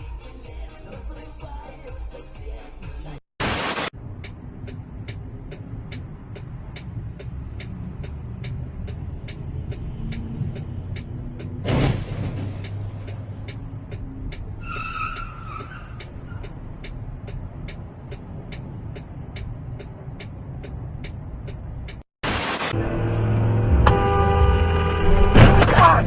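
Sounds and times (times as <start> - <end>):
car engine and road noise: 0.0 - 26.0
loud burst of noise: 3.4 - 3.9, 22.2 - 22.8
loud rush of noise: 3.4 - 3.9, 22.2 - 23.6.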